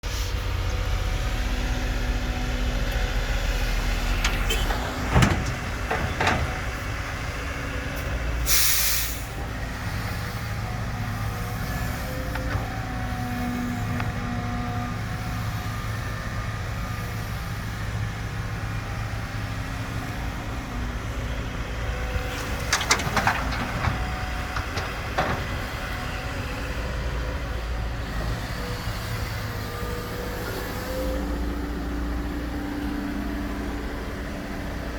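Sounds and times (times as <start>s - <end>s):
excavator diesel engine running: 0.0s - 34.9s
short hiss: 8.5s - 9.3s.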